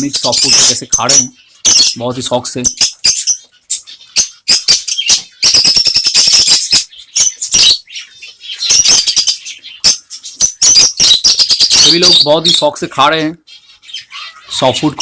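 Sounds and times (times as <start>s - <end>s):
parrots chirping and squawking: 0.0s - 15.0s.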